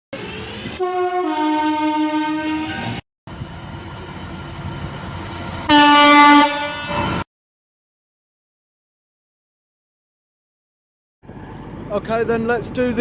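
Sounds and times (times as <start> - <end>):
train running: 0.1 - 7.2
short loud horn blast: 0.8 - 3.0, 5.7 - 7.2
two-tone train horn: 0.8 - 3.0, 5.7 - 7.2.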